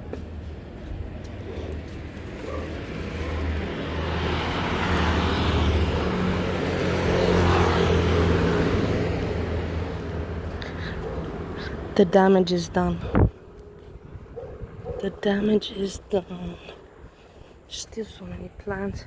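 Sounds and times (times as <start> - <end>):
vehicle passing by: 0.3 - 12.1.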